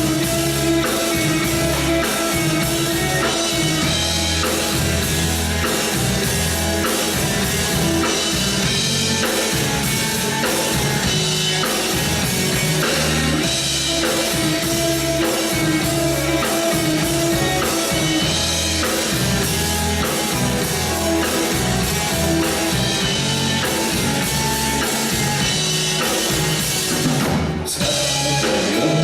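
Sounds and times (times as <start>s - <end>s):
live rock band playing: 0.0s - 29.0s.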